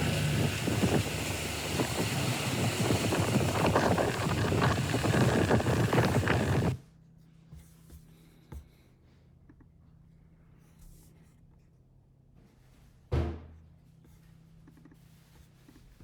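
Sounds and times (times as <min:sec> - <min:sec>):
rushing water: 0:00.0 - 0:06.8
wind buffeting microphone: 0:00.0 - 0:06.8.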